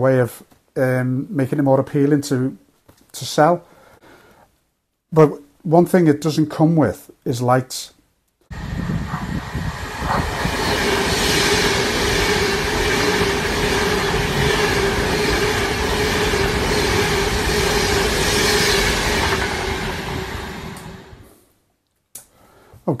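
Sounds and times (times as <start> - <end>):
steady train hum: 8.5 - 21.3
train passing rush: 8.5 - 21.3.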